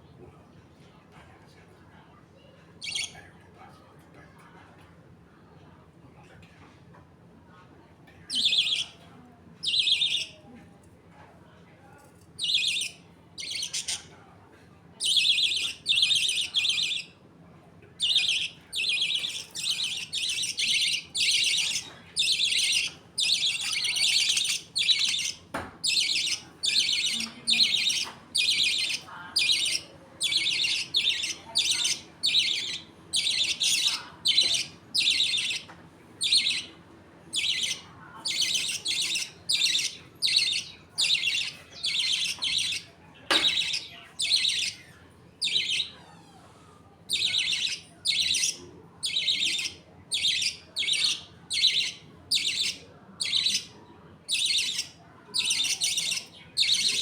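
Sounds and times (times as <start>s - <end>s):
budgerigars chirping: 2.8s - 3.2s, 8.3s - 9.0s, 9.6s - 10.4s, 12.4s - 14.0s, 15.0s - 17.2s, 18.0s - 44.8s, 45.4s - 46.0s, 47.1s - 53.7s, 54.3s - 57.0s.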